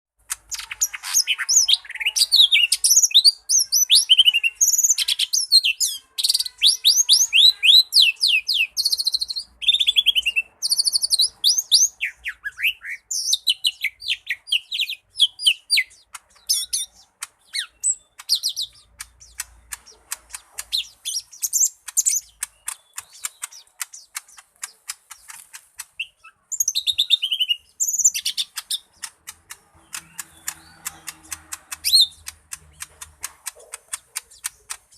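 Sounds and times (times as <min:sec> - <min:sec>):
rapid ticking bird notes: 0:00.2 - 0:34.9
bird singing chirps and whistles: 0:00.5 - 0:19.5, 0:20.3 - 0:25.4, 0:26.0 - 0:29.0.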